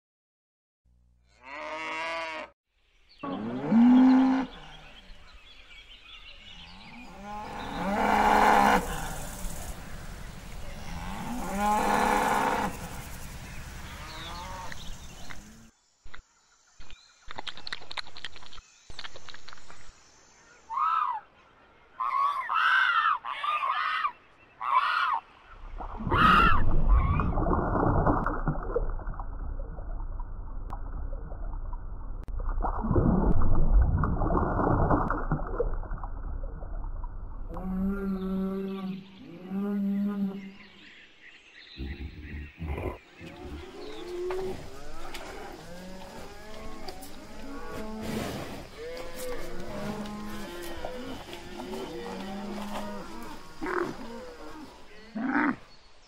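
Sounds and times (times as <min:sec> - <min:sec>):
cattle mooing: 0:01.3 - 0:02.5.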